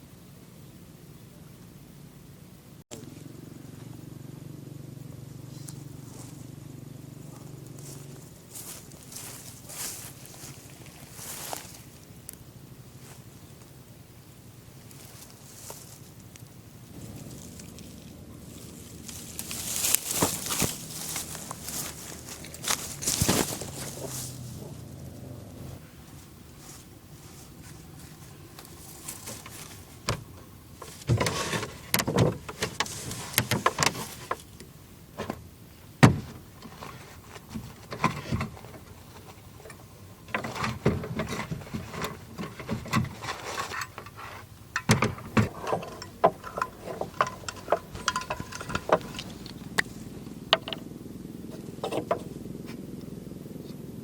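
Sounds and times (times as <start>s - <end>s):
faint low background hum: 0.0s - 54.0s
rustling: 7.2s - 13.9s, 14.5s - 35.3s, 36.1s - 50.8s.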